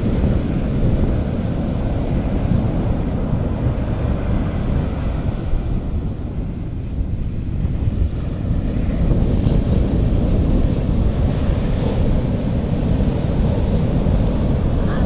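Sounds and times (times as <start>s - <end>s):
sea waves washing onto beach: 0.0s - 15.0s
wind buffeting microphone: 0.0s - 15.0s.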